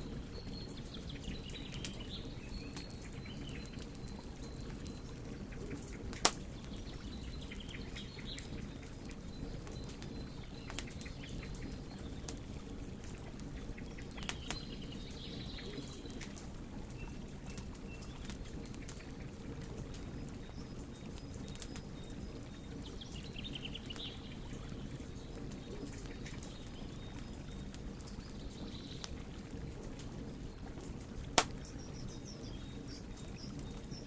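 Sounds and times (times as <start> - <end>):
faint birds chirping: 0.0 - 34.0
wood fire crackling: 0.0 - 34.0.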